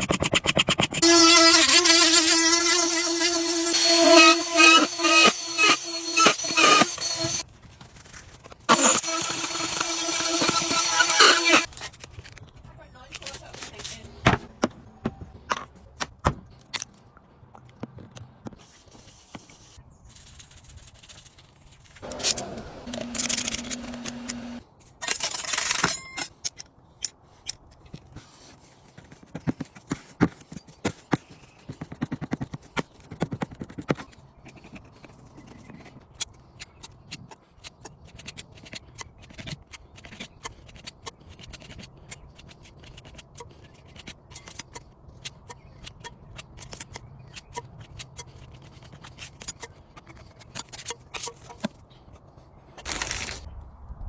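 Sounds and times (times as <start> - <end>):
hand tool scraping wood: 0.0 - 7.4, 8.7 - 11.7, 22.0 - 24.6.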